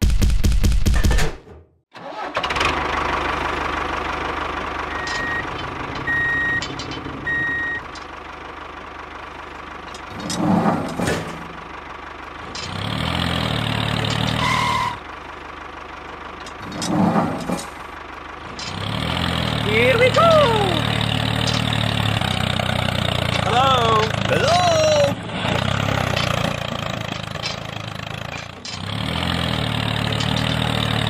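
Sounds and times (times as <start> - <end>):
tractor engine idling: 2.0 - 31.0
reversing beeps: 4.9 - 5.5, 6.1 - 7.9.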